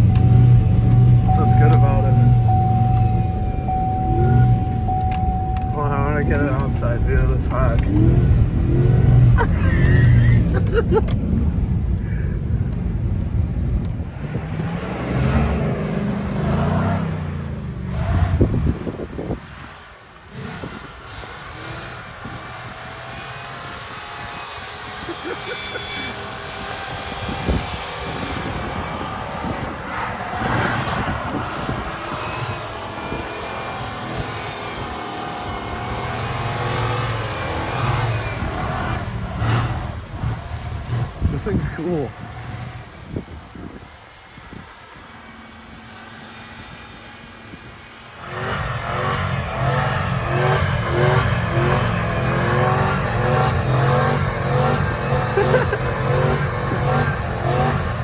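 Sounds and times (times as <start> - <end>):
engine rumbling and revving: 0.0 - 58.0.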